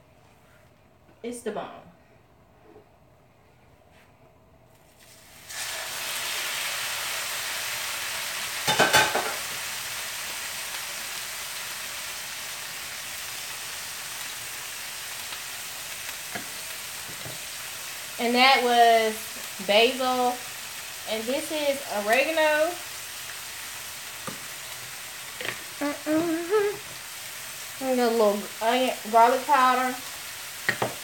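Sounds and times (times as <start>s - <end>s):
chicken frying in hot oil: 5.0s - 31.0s.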